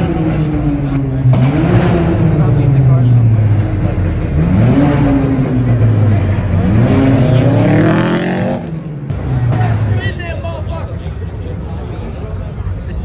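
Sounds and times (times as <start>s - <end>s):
car engine revving: 0.0s - 10.1s.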